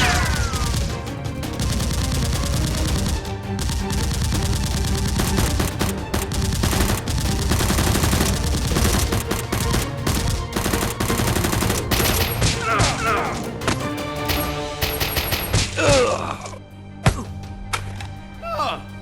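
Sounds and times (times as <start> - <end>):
background music: 0.0 - 19.0
automatic gunfire: 1.6 - 12.6, 14.3 - 15.6.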